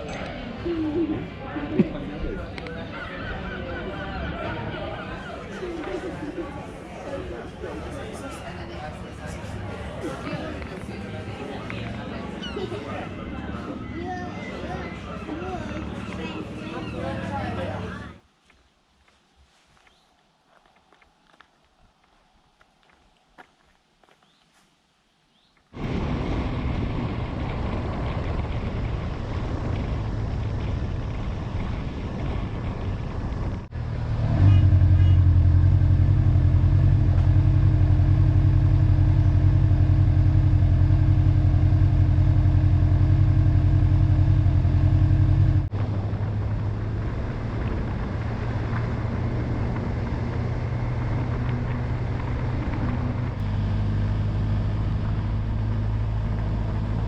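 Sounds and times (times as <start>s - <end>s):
wind and road noise: 0.0s - 57.0s
motorcycle engine drone: 25.8s - 57.0s.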